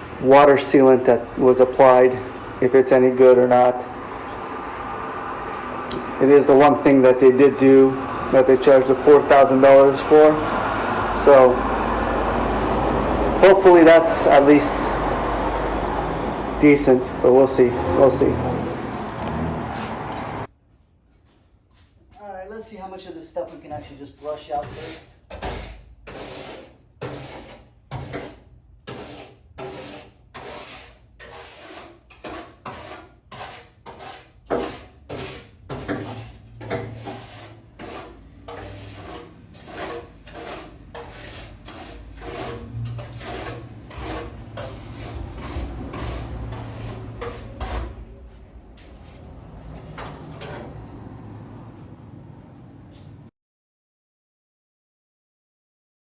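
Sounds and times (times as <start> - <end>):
stiff brush scrubbing: 23.4 - 49.4.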